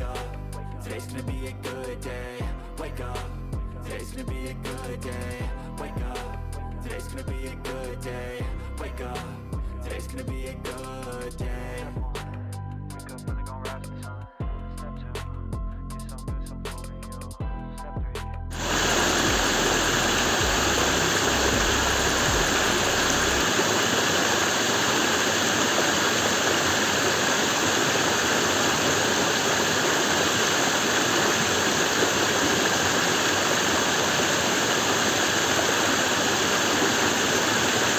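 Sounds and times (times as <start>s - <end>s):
low bass note: 18.6s - 23.4s
loud rushing noise: 18.6s - 37.9s.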